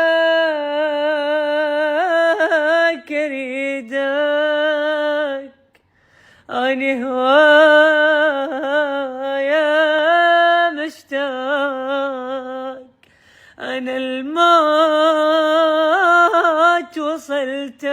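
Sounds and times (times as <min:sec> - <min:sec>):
man singing unaccompanied: 0:13.6 - 0:17.9.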